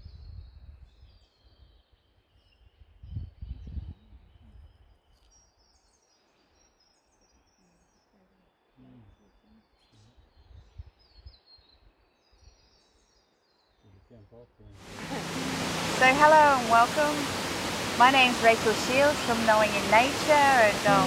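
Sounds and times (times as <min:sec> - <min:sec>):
low rumbling: 0:14.8 - 0:21.0.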